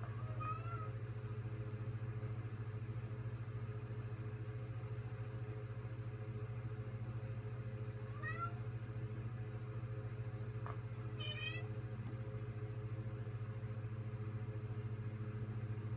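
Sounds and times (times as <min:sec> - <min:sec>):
steady low hum: 0:00.0 - 0:15.9
cat meowing: 0:00.2 - 0:00.9, 0:08.2 - 0:08.6, 0:11.2 - 0:11.7.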